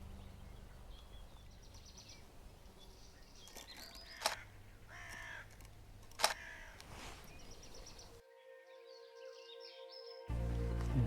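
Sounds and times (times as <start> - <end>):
harsh bird calls: 0.0 - 8.2
camera shutter clicks: 3.4 - 6.5.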